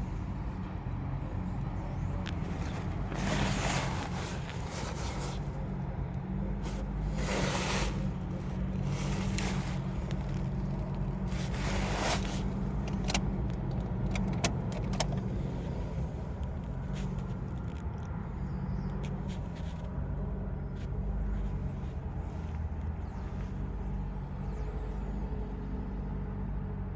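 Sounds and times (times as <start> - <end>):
engine idling hum: 0.0 - 26.9
sharp clicks and knocks: 12.8 - 15.3.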